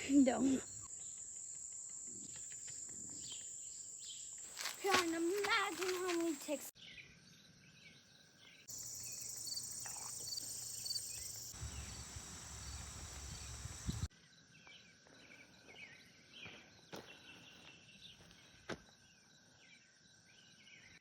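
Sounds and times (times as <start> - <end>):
insects trilling: 0.2 - 6.7, 8.7 - 14.1
birds calling faintly: 8.5 - 14.1.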